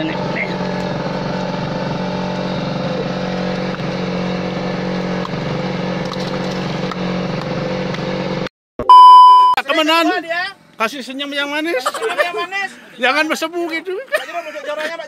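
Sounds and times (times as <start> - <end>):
boat engine droning: 0.0 - 8.5.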